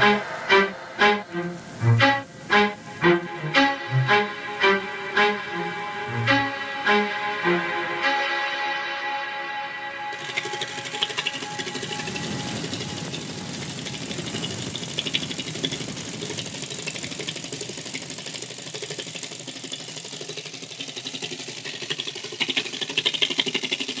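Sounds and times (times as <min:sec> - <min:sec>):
model engine clattering: 0:10.1 - 0:24.0.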